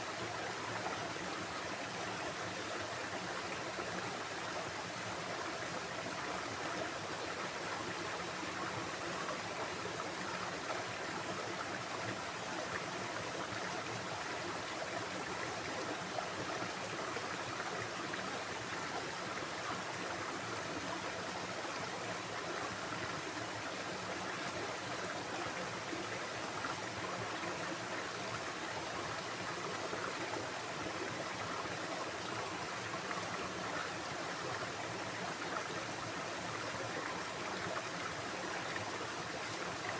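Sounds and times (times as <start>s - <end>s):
stream of running water: 0.0s - 39.9s.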